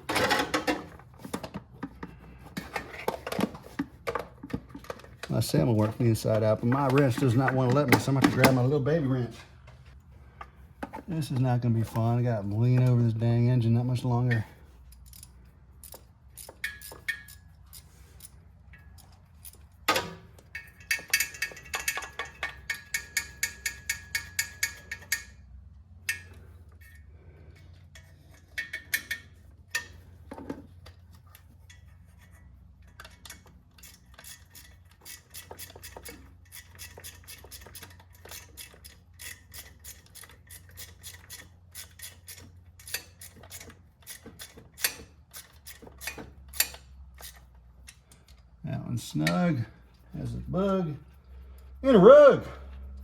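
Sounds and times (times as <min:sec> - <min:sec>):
ratchet wrench clicking: 0:14.9 - 0:19.7, 0:20.5 - 0:25.4, 0:32.9 - 0:48.3.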